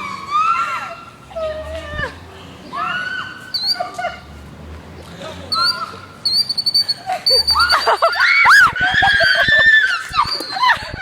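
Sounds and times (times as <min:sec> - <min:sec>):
girls screaming: 0:00.0 - 0:04.4, 0:07.1 - 0:11.0
bird squeaks: 0:05.5 - 0:08.2.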